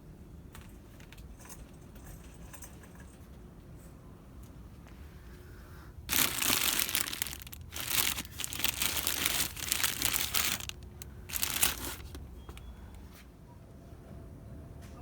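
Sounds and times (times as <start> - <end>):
packaging crinkling: 6.1 - 12.6.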